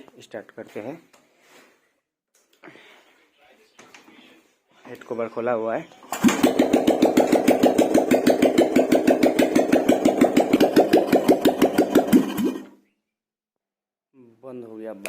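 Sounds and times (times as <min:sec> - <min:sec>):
motorcycle engine running: 0:06.1 - 0:12.7.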